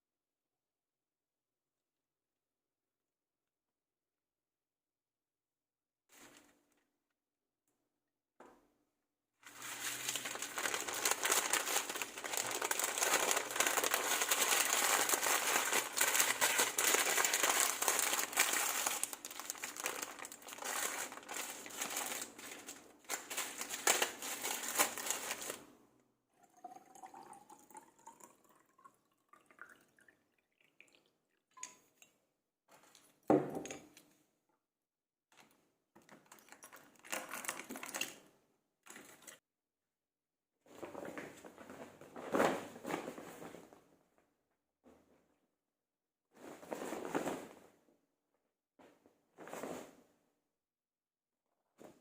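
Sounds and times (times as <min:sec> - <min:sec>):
packaging crinkling: 0:09.4 - 0:25.6.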